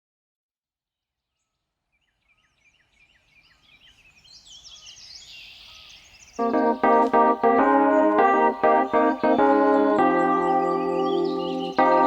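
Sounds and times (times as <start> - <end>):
birds chirping and trilling: 2.4 - 12.0
organ-like keyboard chord: 6.4 - 12.0.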